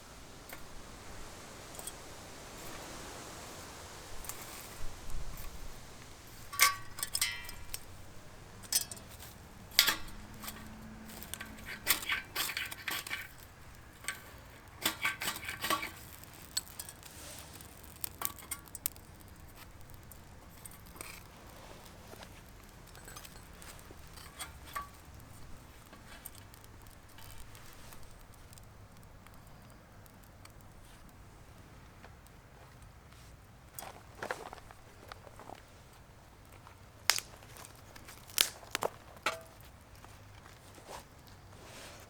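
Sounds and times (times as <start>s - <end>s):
hard objects clinking: 8.6s - 28.2s.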